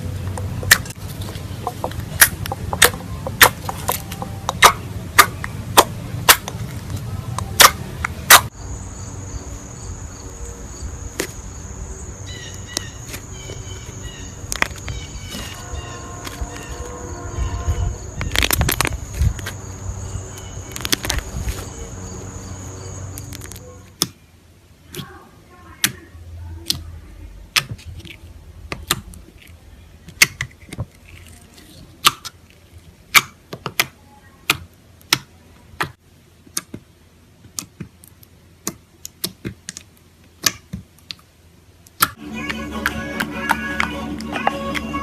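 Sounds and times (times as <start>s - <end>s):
slime clicking and popping: 1.6s - 6.6s, 7.4s - 8.5s, 37.4s - 41.3s, 41.9s - 44.8s.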